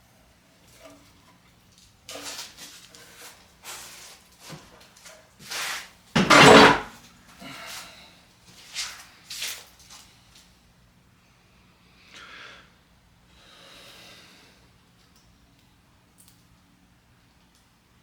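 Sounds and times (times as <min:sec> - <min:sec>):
metal clanking and scraping: 0:06.2 - 0:07.0.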